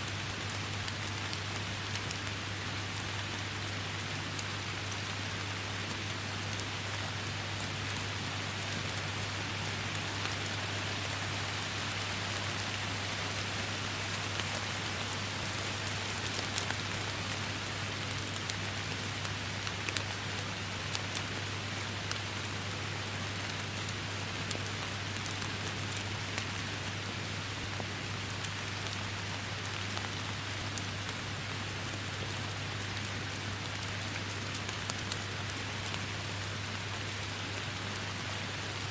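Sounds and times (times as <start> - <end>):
raindrops ticking: 0.1 - 26.8, 28.1 - 38.8
rain hissing: 6.2 - 20.9.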